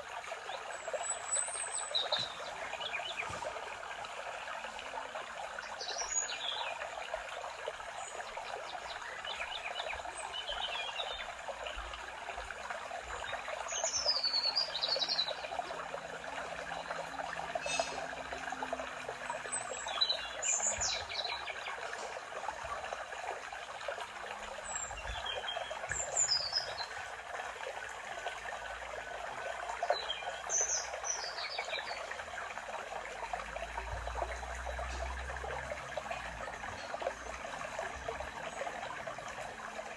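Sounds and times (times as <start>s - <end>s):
trickle of running water: 0.0s - 39.9s
forest birds singing: 0.5s - 3.7s, 5.6s - 6.9s, 8.0s - 11.9s, 13.1s - 18.4s, 19.3s - 22.2s, 24.6s - 27.0s, 29.8s - 32.2s.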